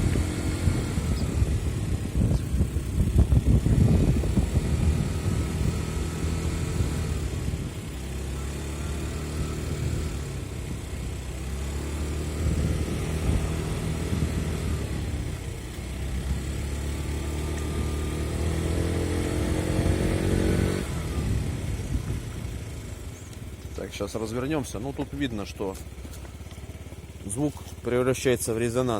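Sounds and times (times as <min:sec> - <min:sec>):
scooter engine running: 0:00.0 - 0:28.9
engine resonance: 0:19.6 - 0:28.9.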